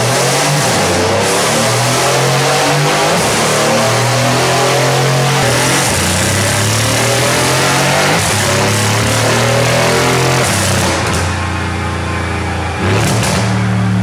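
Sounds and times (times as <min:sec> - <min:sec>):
car engine revving on a dyno: 0:00.0 - 0:14.0.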